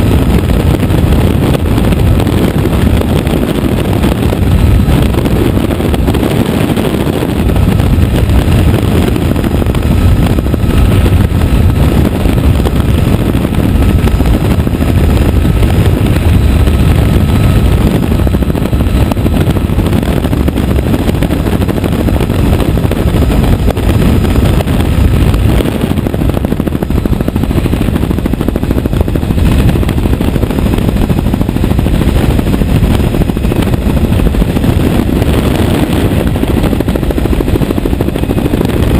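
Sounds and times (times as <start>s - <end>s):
helicopter rotor chop and engine: 0.0s - 38.9s.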